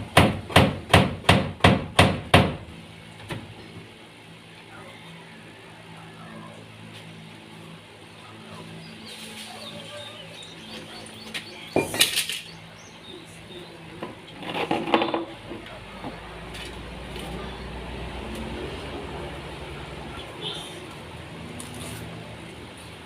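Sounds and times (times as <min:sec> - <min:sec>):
hard objects clattering: 0:14.0 - 0:15.6.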